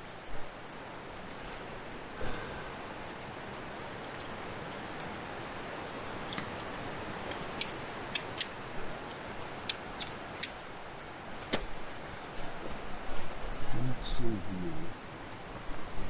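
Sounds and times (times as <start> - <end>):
steady rushing noise: 0.0 - 16.0
light sharp clicks: 6.1 - 10.6.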